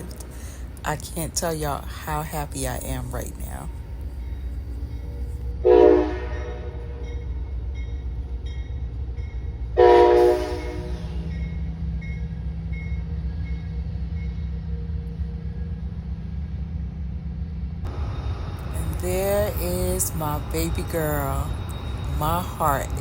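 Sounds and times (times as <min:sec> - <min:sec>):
locomotive rumble: 0:00.0 - 0:23.0
train air horn blasts: 0:05.6 - 0:07.1, 0:09.8 - 0:11.4.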